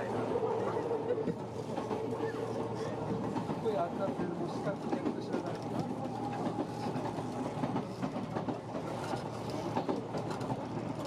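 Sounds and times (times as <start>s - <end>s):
train wheels rumbling on rails: 0.0s - 11.0s
track clicks and clatter: 3.2s - 11.0s.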